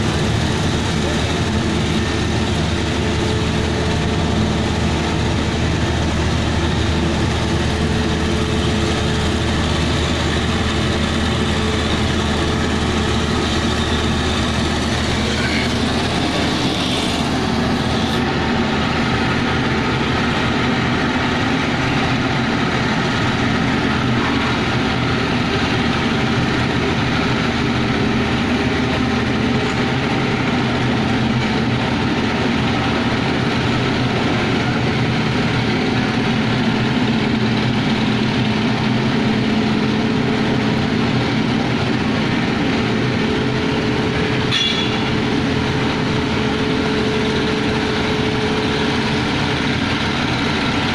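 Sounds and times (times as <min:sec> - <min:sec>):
heavy diesel engine droning: 0:00.0 - 0:50.9.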